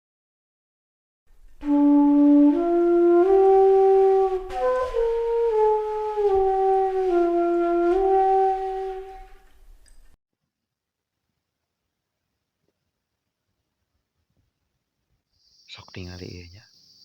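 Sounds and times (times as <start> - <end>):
slow flute melody: 1.6 - 9.7.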